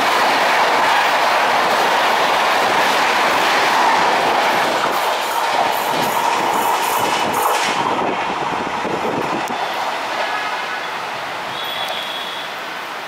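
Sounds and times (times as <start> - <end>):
train wheels clattering over joints: 0.0 - 9.6
train rushing past: 0.0 - 13.0.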